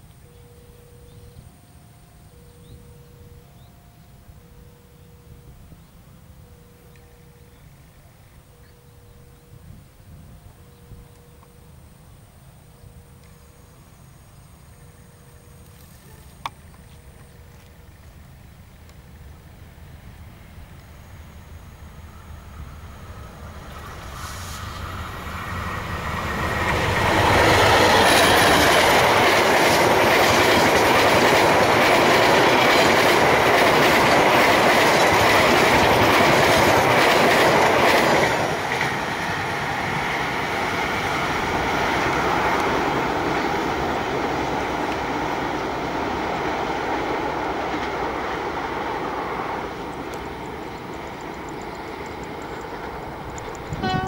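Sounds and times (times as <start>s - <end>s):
diesel locomotive passing: 0.0s - 54.0s
train wheels clickety-clack: 23.6s - 54.0s.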